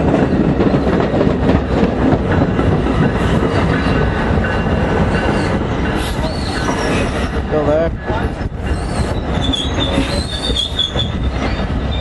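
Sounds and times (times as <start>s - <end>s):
train clatter: 0.0s - 12.0s
train wheels rumbling on track: 0.0s - 12.0s.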